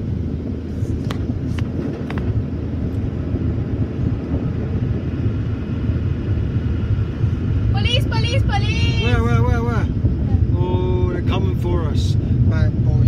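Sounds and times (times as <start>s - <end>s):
car wash machinery rumble: 0.0s - 13.0s.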